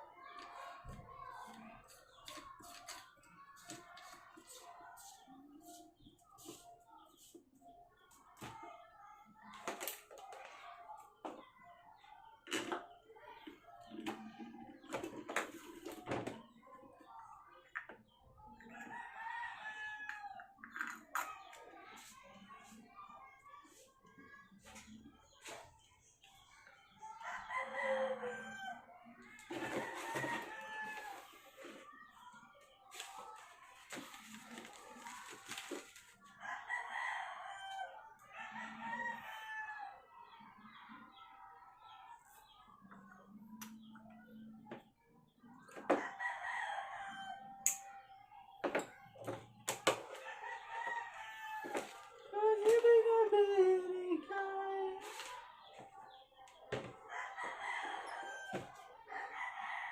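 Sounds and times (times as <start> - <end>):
rooster crowing: 27.4 - 28.8.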